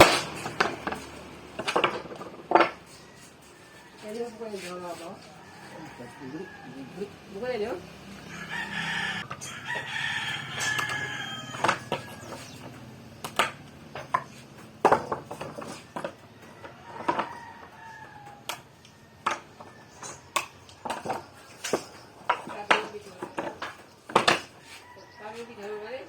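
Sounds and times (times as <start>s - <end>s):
sharp knocks and clicks: 10.6s - 17.3s, 19.2s - 24.5s.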